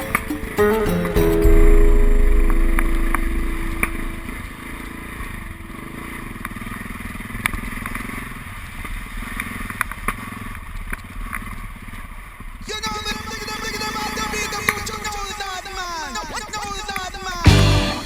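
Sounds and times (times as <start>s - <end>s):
held music note: 0.0s - 7.6s.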